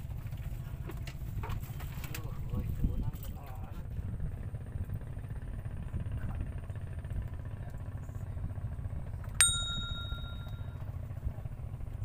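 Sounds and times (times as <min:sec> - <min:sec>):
steady low rumble: 0:03.8 - 0:12.0
small metal bell ringing: 0:09.4 - 0:10.9.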